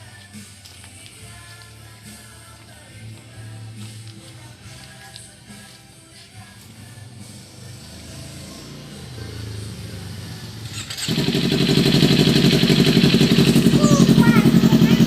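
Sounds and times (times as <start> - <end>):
motorcycle exhaust note: 7.6 - 15.0.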